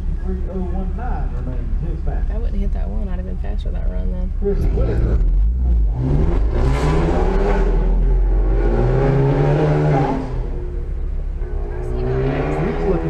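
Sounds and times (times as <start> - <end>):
car engine revving hard: 4.6 - 10.9, 11.5 - 13.0.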